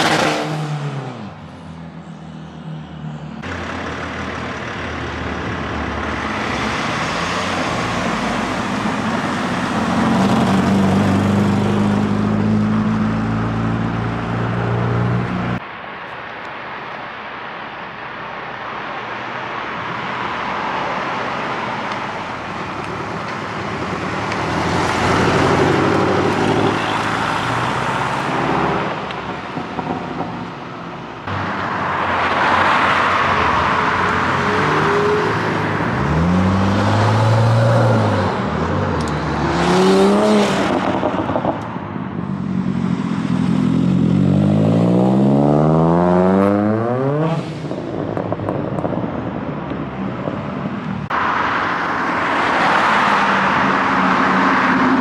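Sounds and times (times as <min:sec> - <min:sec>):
car engine accelerating hard: 0:00.0 - 0:01.4, 0:03.4 - 0:15.6, 0:20.6 - 0:49.0
cars driving past: 0:00.0 - 0:55.0.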